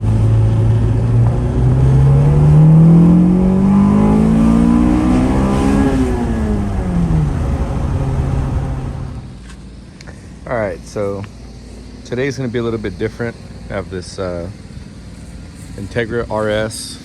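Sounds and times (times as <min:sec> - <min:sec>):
car engine accelerating: 0:00.0 - 0:09.5.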